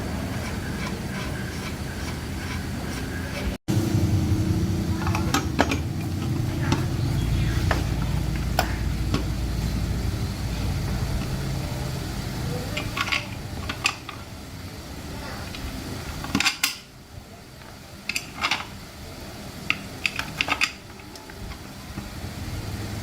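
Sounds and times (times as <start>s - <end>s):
motor humming: 0.0s - 16.3s.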